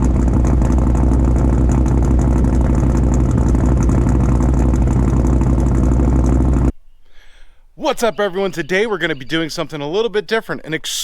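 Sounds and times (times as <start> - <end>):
car engine idling: 0.0 - 6.7.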